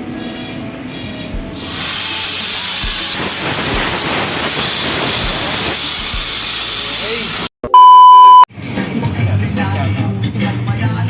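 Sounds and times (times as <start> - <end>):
compressed air hissing: 1.5 - 7.5.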